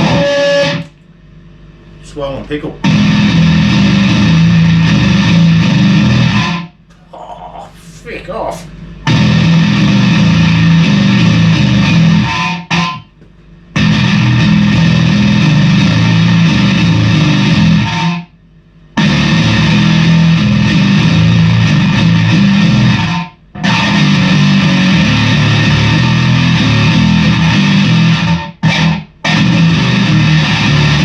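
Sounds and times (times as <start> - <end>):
fuzzed bass guitar riffs: 0.0 - 1.0, 2.7 - 31.0.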